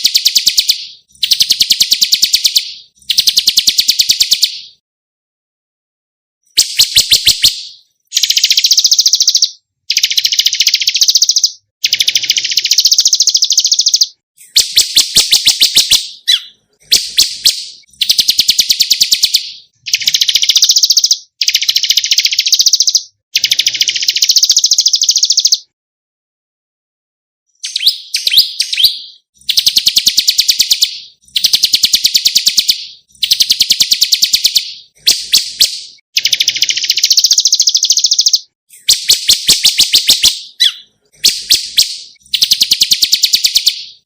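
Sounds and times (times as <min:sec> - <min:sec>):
songbird trilling: 0:06.6 - 0:23.1, 0:24.1 - 0:25.7, 0:27.6 - 0:44.0.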